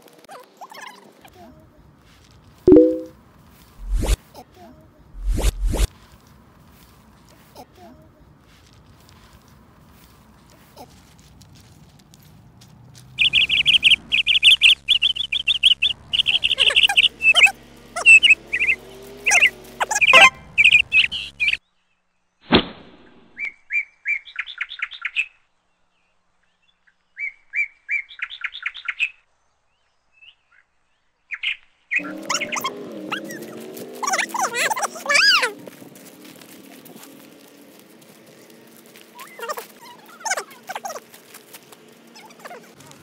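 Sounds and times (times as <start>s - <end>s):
sharp swish: 3.8s - 4.2s, 5.2s - 5.9s
bird chirping: 13.2s - 22.1s.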